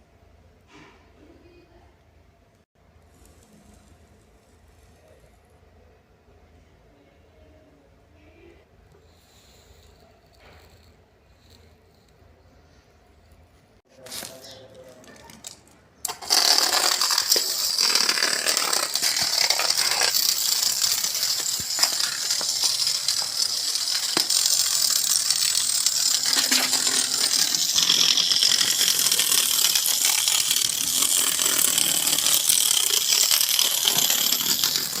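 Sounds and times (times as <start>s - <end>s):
small hobby motor running: 15.1s - 35.0s.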